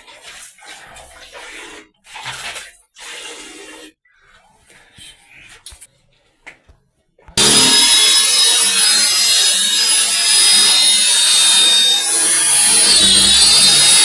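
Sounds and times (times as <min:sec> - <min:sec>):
electric drill whining: 0:07.4 - 0:14.0.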